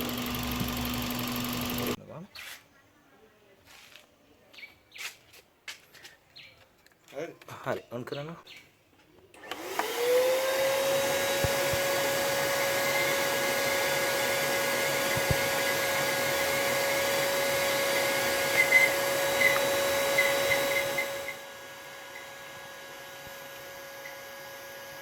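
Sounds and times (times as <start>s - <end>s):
electric air pump whine: 0.0s - 2.0s, 9.4s - 25.0s.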